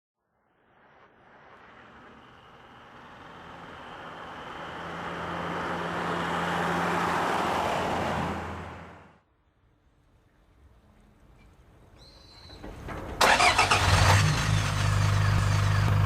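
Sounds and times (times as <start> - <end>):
pickup truck engine hum: 1.3 - 9.2, 13.2 - 16.0.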